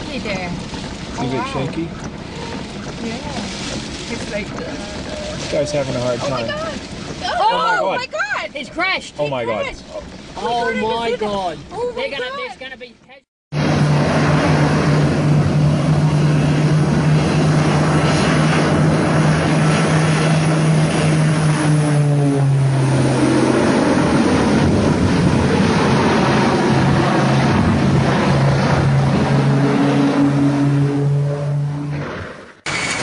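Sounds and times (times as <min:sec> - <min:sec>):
aircraft engine drone: 0:13.5 - 0:33.0
loud rushing noise: 0:13.5 - 0:33.0.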